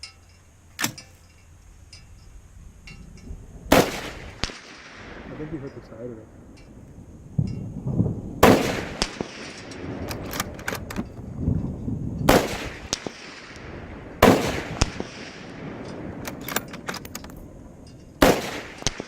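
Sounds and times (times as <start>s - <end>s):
rifle shots echoing: 3.7s - 6.8s, 8.4s - 11.3s, 12.3s - 19.0s.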